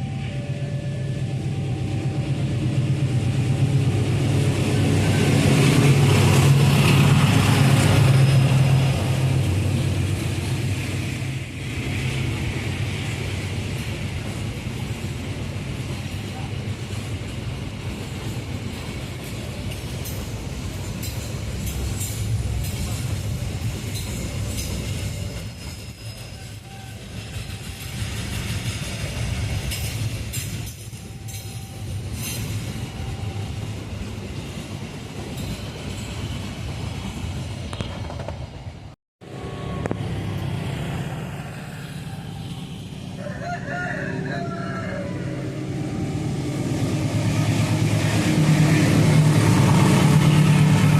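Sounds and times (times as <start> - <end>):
train engine drone: 0.0 - 50.9
train wheels clicking over rails: 11.7 - 33.2, 34.1 - 38.9.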